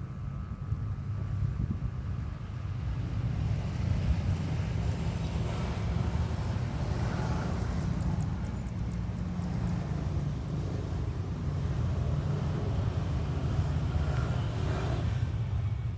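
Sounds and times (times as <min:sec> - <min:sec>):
wind buffeting microphone: 0:00.0 - 0:15.9
faint high ticks: 0:07.5 - 0:09.8.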